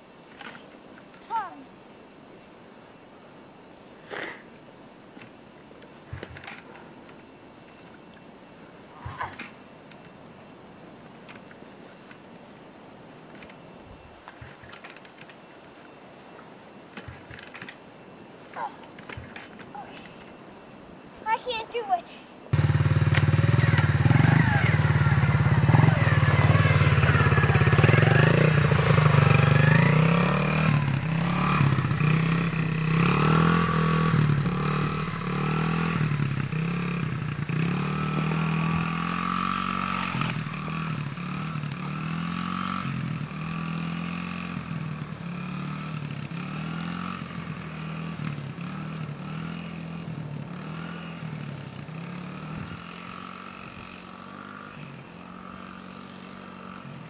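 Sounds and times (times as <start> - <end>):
dirt bike engine revving: 22.6 - 57.0.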